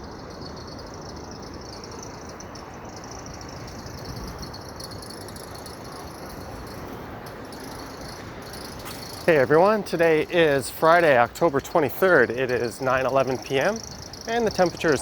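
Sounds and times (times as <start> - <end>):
city traffic rumble: 0.0 - 15.0
crickets chirring: 0.0 - 15.0.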